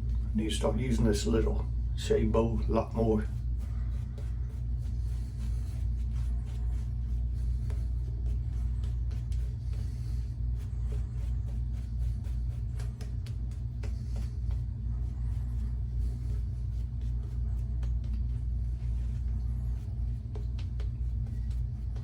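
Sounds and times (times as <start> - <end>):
steady low rumble: 0.0 - 22.0
shaving brush swishing lather: 2.3 - 22.0.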